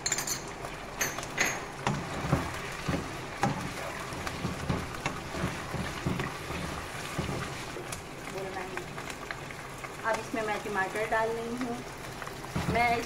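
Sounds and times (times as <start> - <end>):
chicken sizzling in hot oil: 0.0 - 13.0
wooden spatula scraping pan: 1.8 - 7.9.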